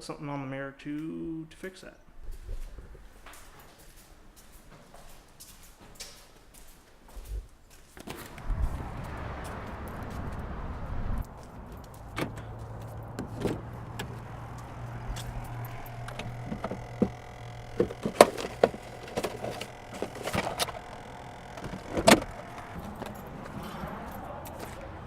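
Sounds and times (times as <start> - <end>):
low steady hum: 12.1 - 24.4.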